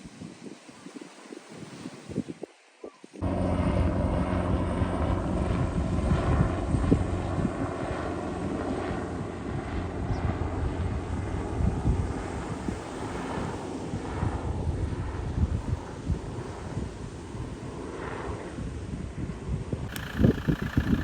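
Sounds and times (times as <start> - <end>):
engine droning: 3.2 - 6.2, 19.9 - 21.0.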